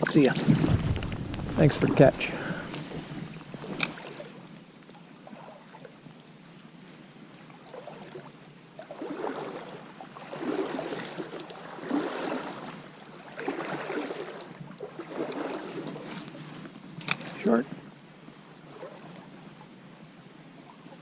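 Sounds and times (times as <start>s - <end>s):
water splashing around wading legs: 0.4s - 4.4s, 8.8s - 17.5s.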